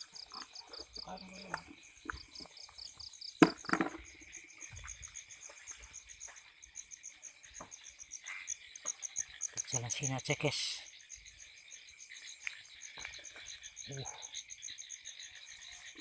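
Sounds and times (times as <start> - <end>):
cricket chirping: 0.0 - 16.0
high insect drone: 0.0 - 16.0.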